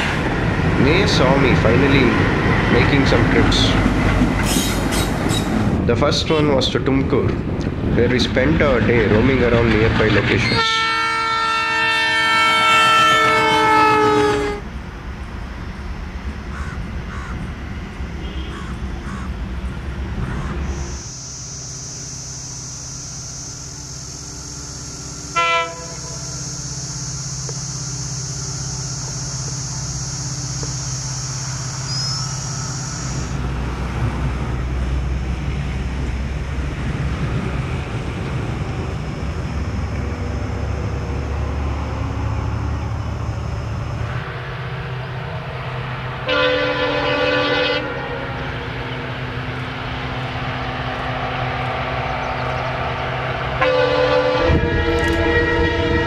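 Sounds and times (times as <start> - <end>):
train running with low rumble: 0.0 - 56.0
train horn: 10.4 - 14.7, 18.2 - 18.7, 25.2 - 27.2, 46.2 - 48.6, 53.4 - 56.0
high-pitched drone: 19.7 - 34.3.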